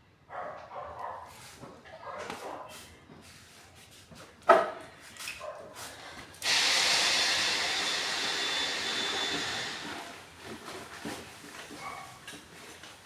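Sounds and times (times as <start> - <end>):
loud steady hiss: 6.4 - 10.1.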